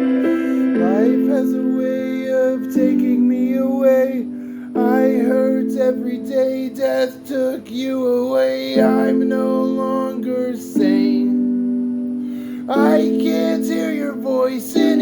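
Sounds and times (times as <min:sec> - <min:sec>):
guitar chords: 0:00.0 - 0:06.2
bending melody line: 0:00.0 - 0:15.0.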